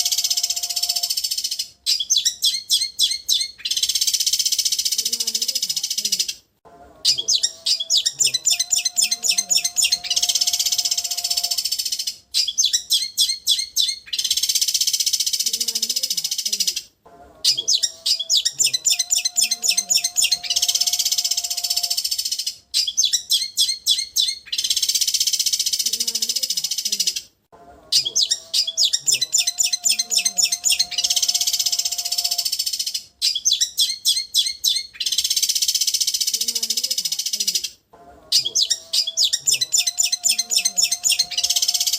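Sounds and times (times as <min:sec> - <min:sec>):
bird buzzy trills: 0:00.0 - 0:02.6, 0:07.1 - 0:12.7, 0:38.3 - 0:41.9
bird trilling: 0:00.0 - 0:06.4, 0:07.0 - 0:16.8, 0:17.4 - 0:27.2, 0:27.9 - 0:37.7, 0:38.3 - 0:41.9
sharp bird chirps: 0:00.0 - 0:06.4, 0:07.1 - 0:16.8, 0:17.5 - 0:27.2, 0:28.0 - 0:37.7, 0:38.4 - 0:41.9.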